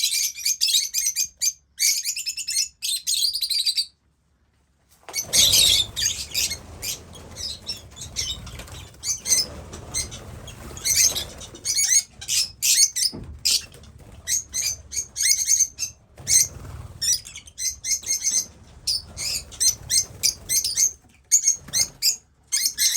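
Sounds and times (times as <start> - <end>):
wing flapping: 5.1 - 22.1
lovebirds chirping: 5.2 - 22.9.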